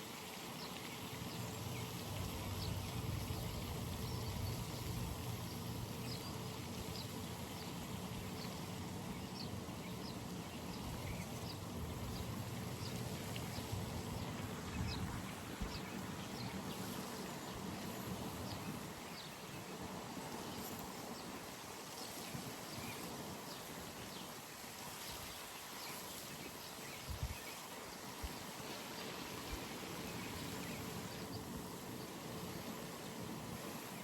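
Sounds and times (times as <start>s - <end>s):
steady background hiss: 0.0s - 34.0s.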